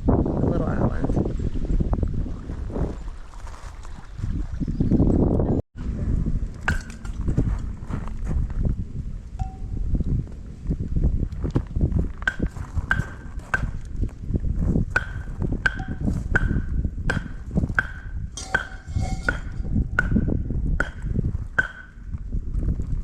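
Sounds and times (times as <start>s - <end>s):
wind rumbling on microphone: 0.0s - 23.0s
sharp metallic strikes ringing: 18.4s - 20.0s.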